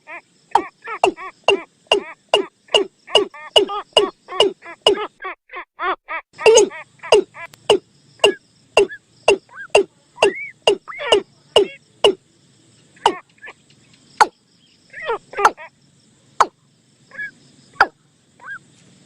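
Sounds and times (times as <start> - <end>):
recorded bird calls: 0.0 - 19.0.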